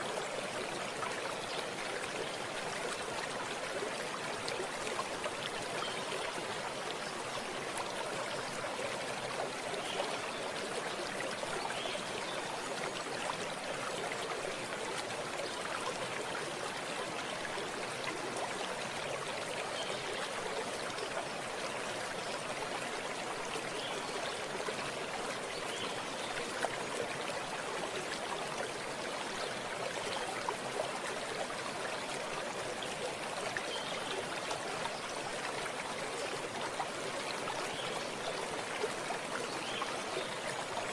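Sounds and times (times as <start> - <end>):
stream water trickling: 0.0 - 40.9.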